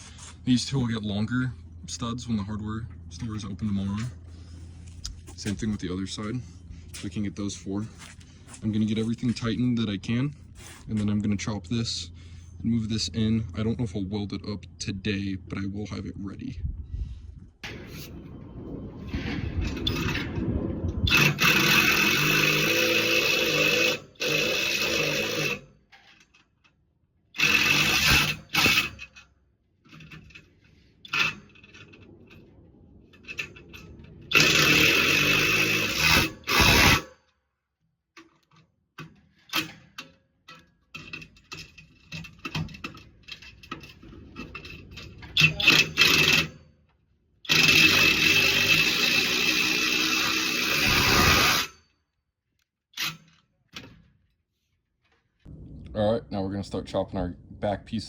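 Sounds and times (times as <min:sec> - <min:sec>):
handheld power tool running: 0:21.1 - 0:25.6, 0:27.4 - 0:29.0, 0:34.3 - 0:37.1, 0:47.5 - 0:51.7.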